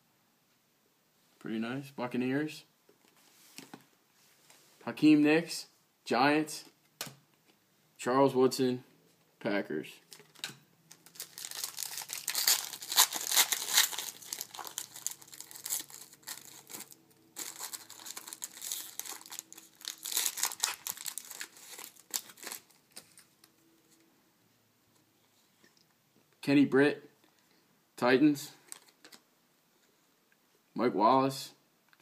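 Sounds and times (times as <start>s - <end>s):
wrapper crackling and rustling: 10.1s - 23.4s.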